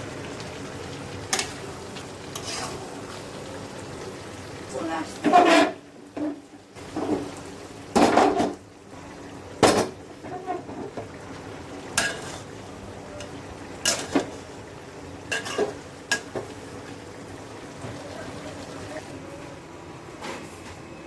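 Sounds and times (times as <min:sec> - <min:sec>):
spoon scraping cooking pot: 0:02.4 - 0:02.8, 0:05.2 - 0:06.4.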